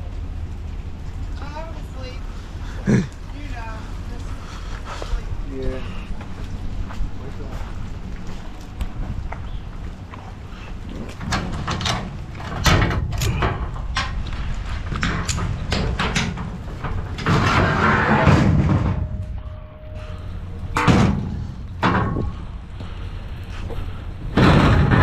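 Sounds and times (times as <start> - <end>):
knocks thuds and slams: 17.3 - 19.2, 20.8 - 22.3.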